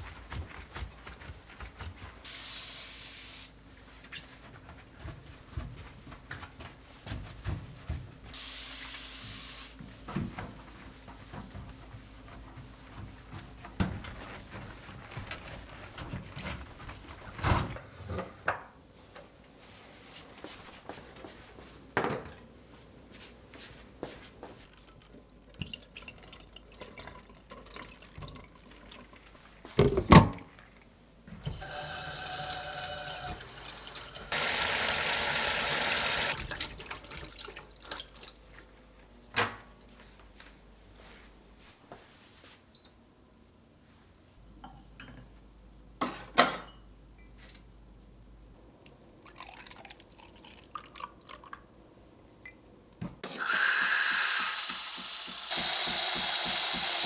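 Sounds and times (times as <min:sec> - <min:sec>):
water hissing from tap: 0:31.6 - 0:36.4, 0:53.4 - 0:57.0
clatter of dishes: 0:46.0 - 0:46.8.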